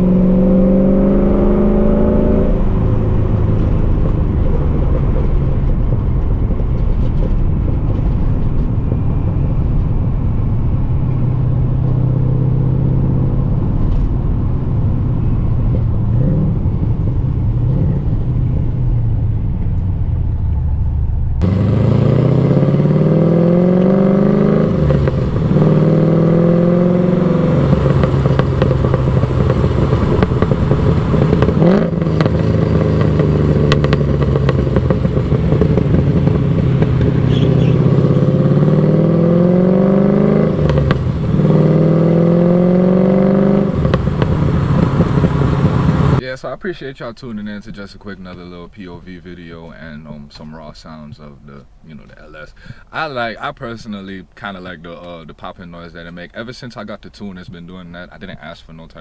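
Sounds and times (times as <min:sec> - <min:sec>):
engine revving: 0:00.0 - 0:07.3, 0:10.6 - 0:46.2
car exhaust cruising: 0:00.0 - 0:59.0.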